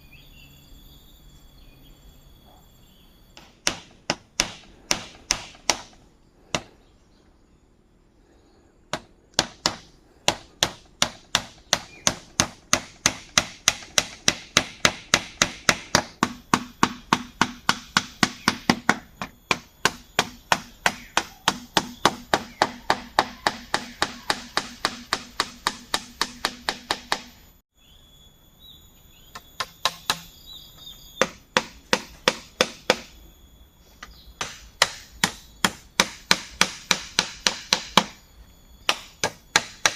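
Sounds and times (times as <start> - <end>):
tool striking bamboo: 3.4 - 6.7, 8.9 - 27.4, 29.4 - 30.4, 31.2 - 33.2, 34.0 - 38.2, 38.8 - 39.9.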